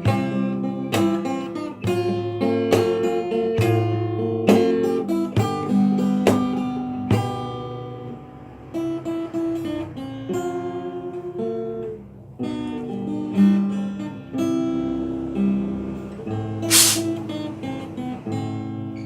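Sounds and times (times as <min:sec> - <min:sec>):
acoustic guitar fingerstyle: 0:00.0 - 0:09.6.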